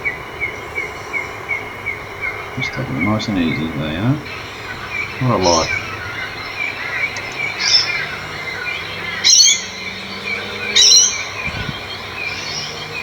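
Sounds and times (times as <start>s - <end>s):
sharp bird calls: 0.0s - 13.0s
small high bird chirps: 0.0s - 13.0s.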